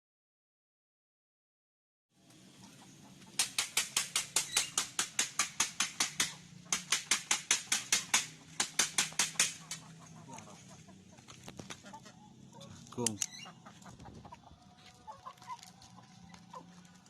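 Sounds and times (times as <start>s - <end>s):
rapid sharp clicks: 3.3s - 9.9s.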